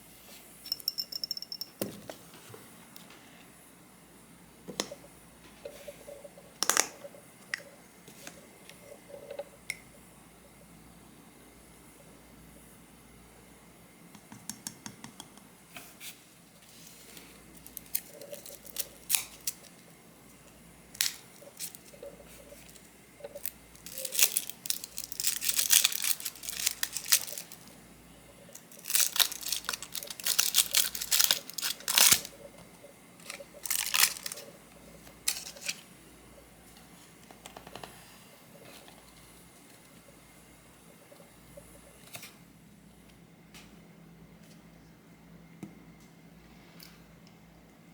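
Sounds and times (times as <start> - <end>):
crinkling and tearing handling noises: 17.2 - 19.9, 20.9 - 27.8, 28.5 - 32.4, 33.2 - 34.5, 35.2 - 35.9.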